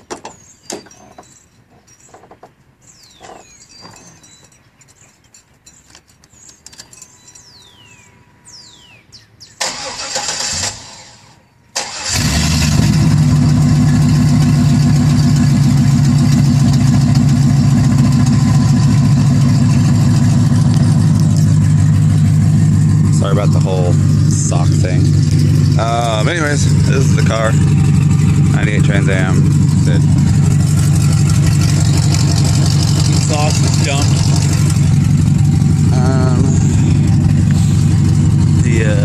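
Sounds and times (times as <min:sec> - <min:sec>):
engine starter cranking: 0:09.6 - 0:14.4
car engine idling: 0:11.8 - 0:39.0.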